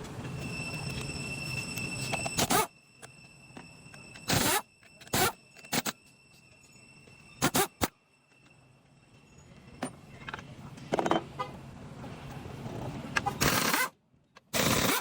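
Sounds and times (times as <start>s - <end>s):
air impact wrench burst: 2.3s - 2.7s, 4.3s - 6.0s, 7.4s - 7.9s, 13.4s - 13.9s, 14.5s - 15.0s.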